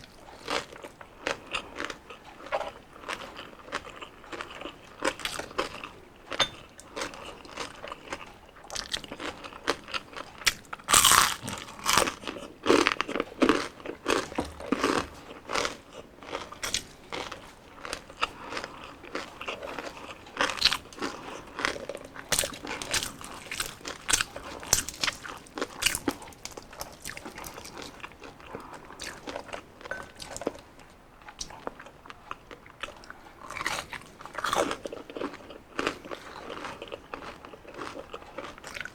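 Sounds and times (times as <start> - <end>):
person chewing crispy food: 0.0 - 38.9.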